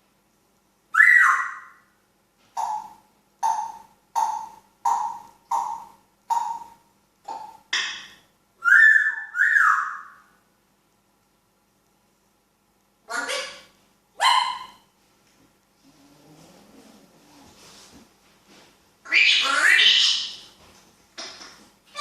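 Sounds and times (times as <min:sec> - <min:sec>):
parrot whistling: 0:01.0 - 0:01.8, 0:08.6 - 0:10.2.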